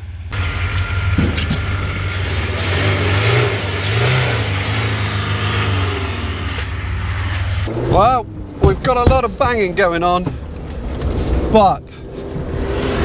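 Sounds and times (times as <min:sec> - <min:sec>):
car engine revving under load: 0:00.0 - 0:13.0
vehicle knocks: 0:08.6 - 0:10.6.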